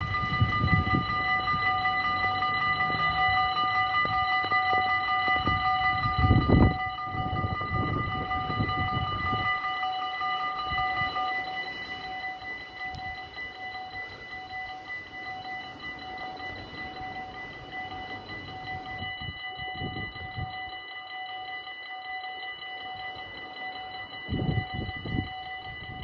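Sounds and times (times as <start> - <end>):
electric train rumbling: 0.0 - 20.8
level crossing bells: 0.0 - 26.0.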